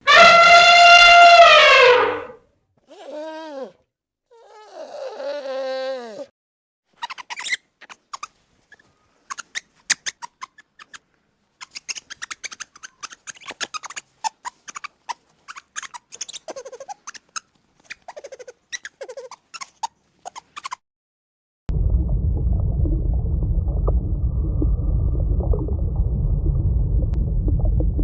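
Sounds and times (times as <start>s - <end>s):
wavering squeals: 0.0s - 2.4s
small animal squeaking and chittering: 7.0s - 11.0s, 11.6s - 20.8s.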